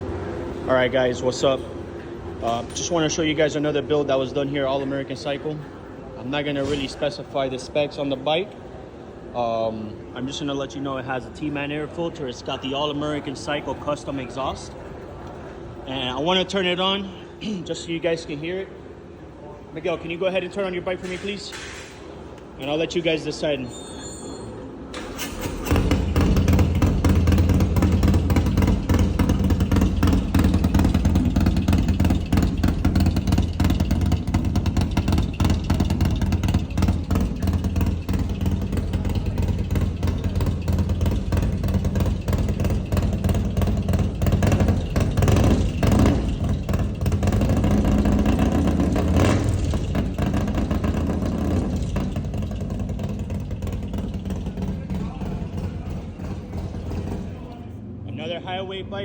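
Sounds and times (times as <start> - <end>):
motorcycle starting and revving: 24.9 - 57.7.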